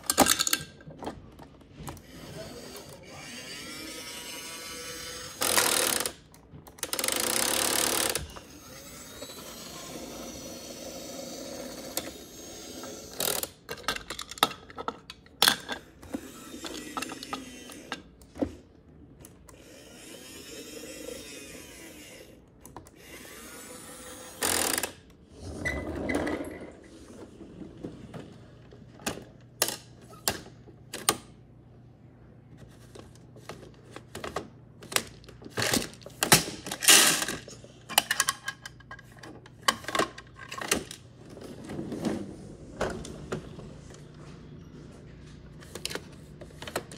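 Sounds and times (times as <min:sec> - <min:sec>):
plastic toy clicks and rattles: 0:00.0 - 0:00.8, 0:05.3 - 0:10.3, 0:11.2 - 0:18.1, 0:33.4 - 0:41.0.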